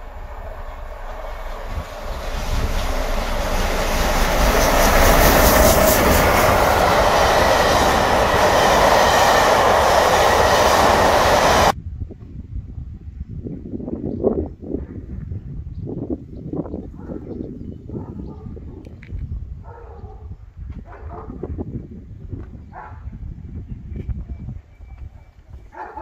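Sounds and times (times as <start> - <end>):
train wheels clattering on rails: 0.0 - 11.7.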